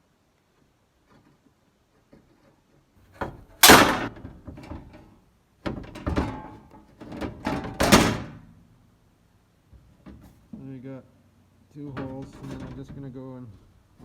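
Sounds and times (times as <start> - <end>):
metal clanks and knocks: 2.0 - 8.4, 11.8 - 13.7
sheet-metal punch snapping: 3.6 - 4.4.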